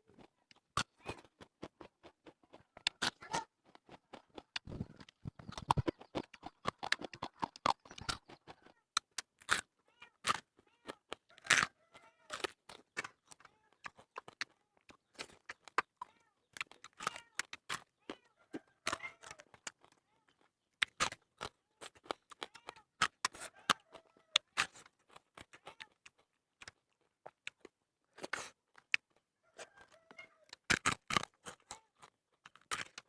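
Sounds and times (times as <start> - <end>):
crunching and chewing food: 0.0 - 33.0
mouth clicks and smacks: 0.5 - 18.0, 18.8 - 23.8, 30.5 - 33.0.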